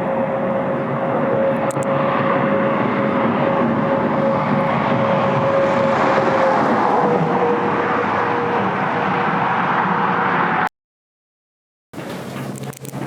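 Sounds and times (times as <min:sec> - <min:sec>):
held hum: 0:00.0 - 0:10.7
mechanical rushing noise: 0:01.3 - 0:10.7.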